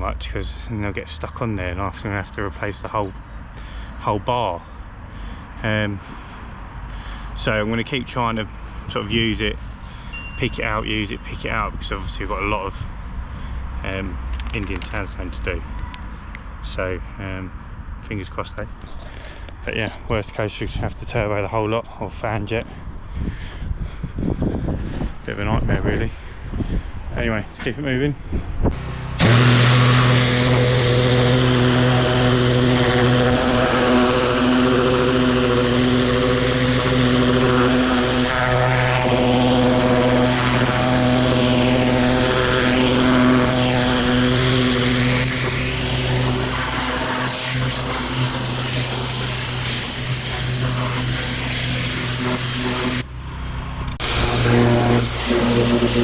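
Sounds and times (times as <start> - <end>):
pressure washer engine running: 28.8 - 53.1, 54.0 - 56.0
water spraying on stone paving: 29.2 - 53.0, 54.0 - 56.0.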